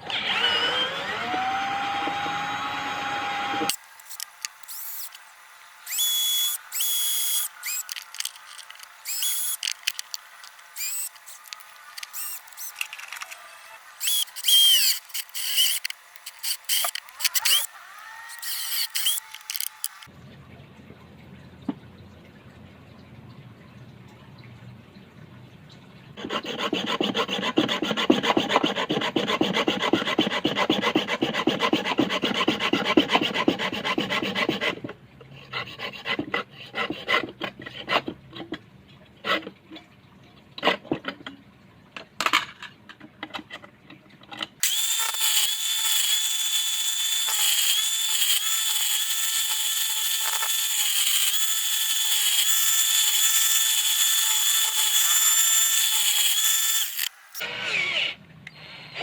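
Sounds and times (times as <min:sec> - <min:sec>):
electric drill whining: 0:00.0 - 0:05.2, 0:05.9 - 0:13.0, 0:14.0 - 0:20.1, 0:44.6 - 0:58.2
hand sawing wood: 0:26.2 - 0:34.9, 0:35.5 - 0:38.2.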